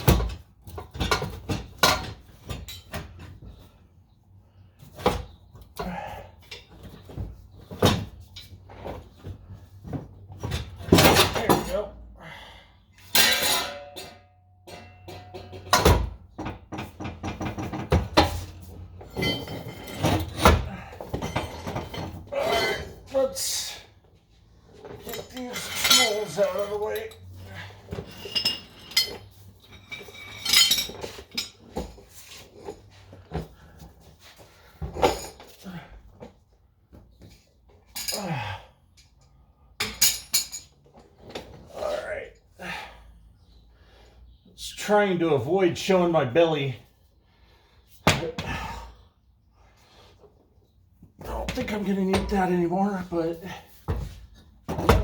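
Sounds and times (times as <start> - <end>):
metal tools clinking: 17.4 - 23.2, 24.8 - 33.0, 39.8 - 41.4.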